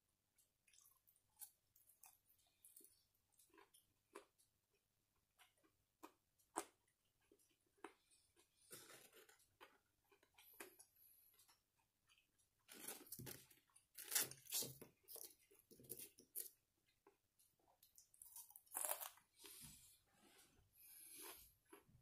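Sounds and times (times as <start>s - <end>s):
person chewing crunchy food: 0.6s - 19.6s.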